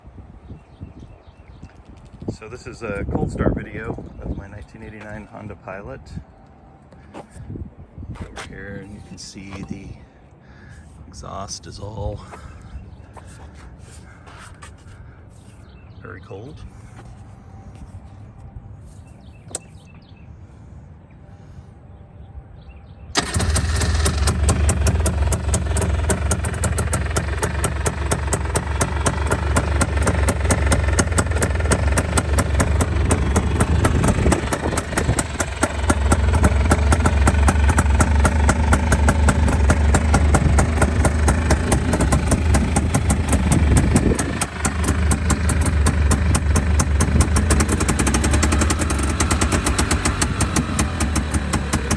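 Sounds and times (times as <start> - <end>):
single-cylinder engine idling: 23.2 - 51.9.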